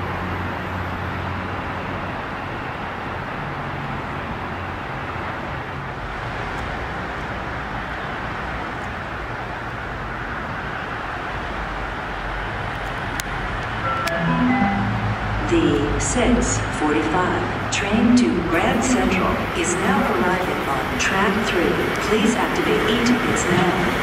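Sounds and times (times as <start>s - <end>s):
electric train rumbling: 0.0s - 24.0s
low hum: 14.0s - 19.2s.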